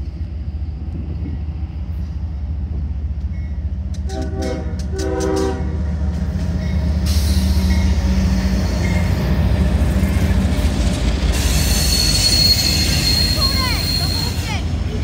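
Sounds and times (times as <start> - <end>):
diesel locomotive engine rumble: 0.0 - 15.0
wheel and rail noise: 0.0 - 15.0
train horn chord: 4.0 - 5.8
high wheel squeal: 11.3 - 14.6.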